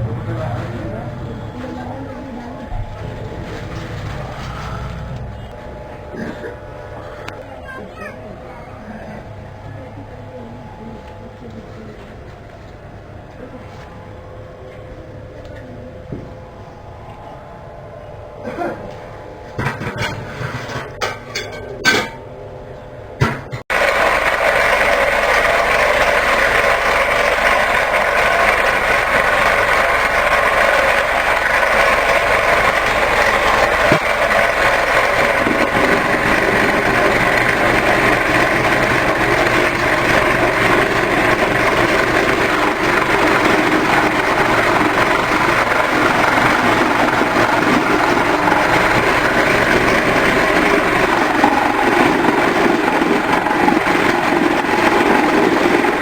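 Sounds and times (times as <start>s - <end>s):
woodworking power tool running: 23.7s - 56.0s.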